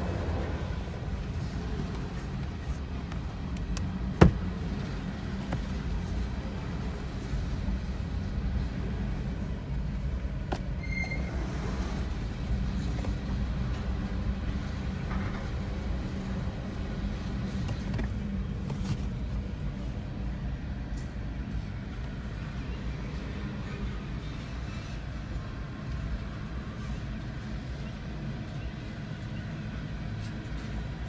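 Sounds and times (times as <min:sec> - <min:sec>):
muffled train rumble: 0:00.0 - 0:31.0
high wheel squeal: 0:10.8 - 0:11.6.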